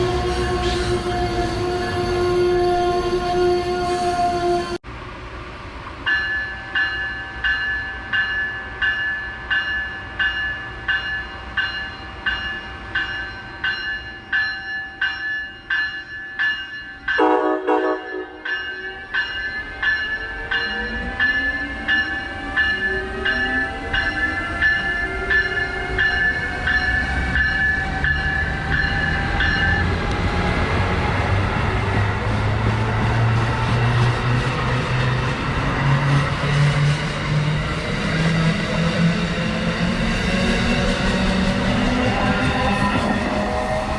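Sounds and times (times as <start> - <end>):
train horn blast: 0.0 - 4.8, 17.2 - 18.4
train whine and rumble: 0.0 - 43.9.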